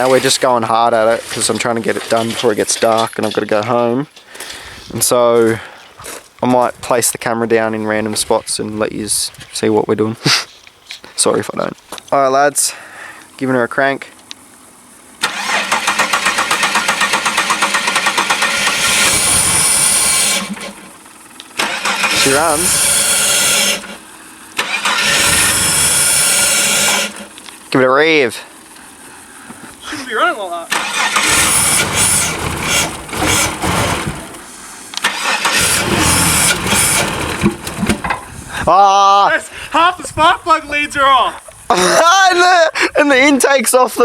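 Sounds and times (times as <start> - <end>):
car engine running: 0.0 - 4.3, 11.0 - 41.1
starter motor cranking: 15.2 - 27.6, 30.7 - 38.4.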